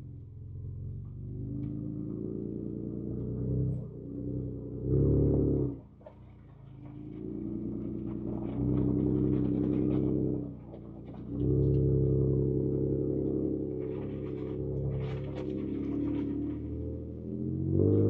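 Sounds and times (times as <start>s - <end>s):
car engine under throttle: 0.0s - 18.0s
small knocks and rattles: 7.8s - 11.8s.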